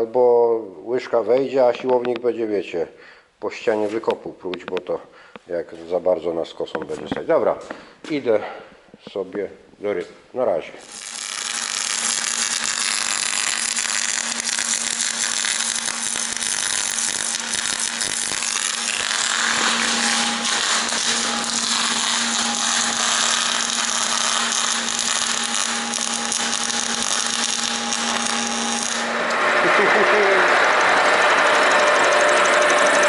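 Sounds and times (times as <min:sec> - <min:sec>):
milling machine cutting steel: 0:10.8 - 0:33.0
ringing tone: 0:30.8 - 0:33.0.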